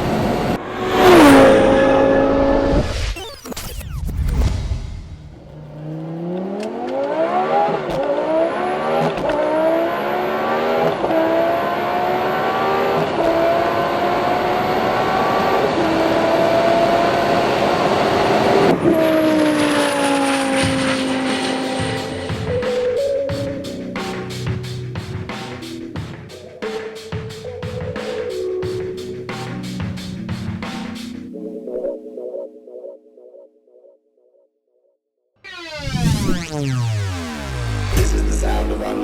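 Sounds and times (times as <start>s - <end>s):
car engine accelerating hard: 0.0s - 2.9s, 5.3s - 23.0s.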